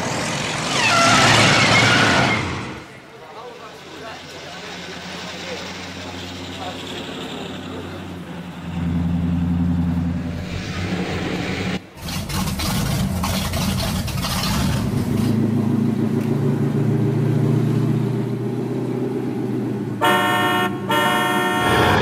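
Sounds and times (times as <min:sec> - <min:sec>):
vehicle engine idling and revving: 0:00.0 - 0:22.0
vehicle horn: 0:00.8 - 0:01.5, 0:20.0 - 0:22.0.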